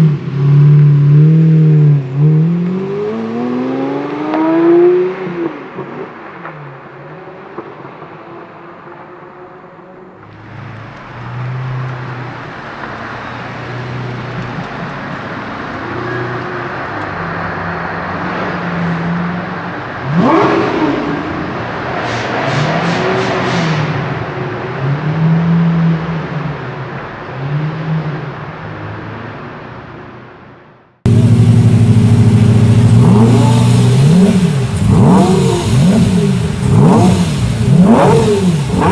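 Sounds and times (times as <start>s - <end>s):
sports car engine revving: 20.0s - 26.4s, 31.1s - 38.9s.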